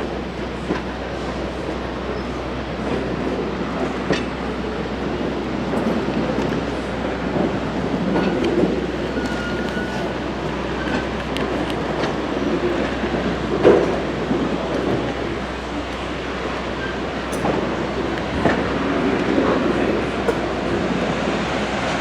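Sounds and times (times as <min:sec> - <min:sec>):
train cars rumbling on rails: 0:00.0 - 0:22.0
thin wheel squeal: 0:09.1 - 0:10.2.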